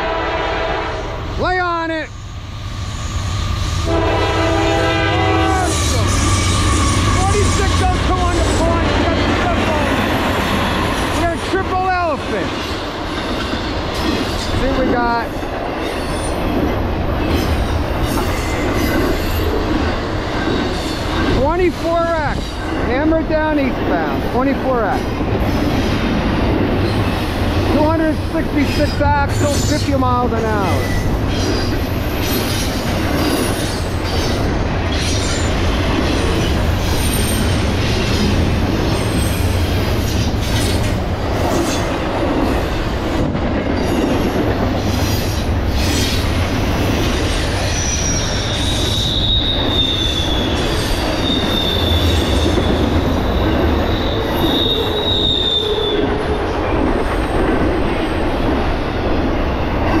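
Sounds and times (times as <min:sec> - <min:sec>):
train wheels rumbling and clattering: 0:02.1 - 1:00.0
high wheel squeal: 0:05.4 - 0:08.2, 0:47.4 - 0:56.2.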